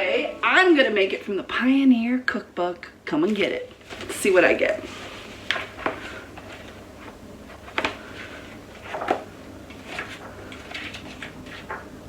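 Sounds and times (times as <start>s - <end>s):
book pages flipping: 4.9s - 12.0s.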